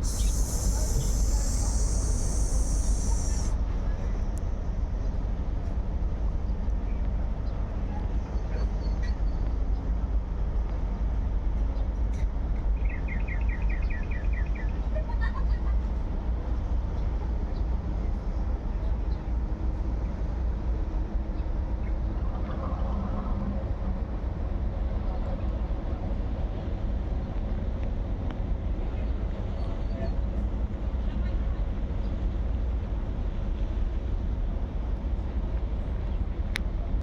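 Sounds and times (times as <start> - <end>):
rapid high chirps: 0.0 - 3.6
low outdoor rumble: 0.0 - 12.6.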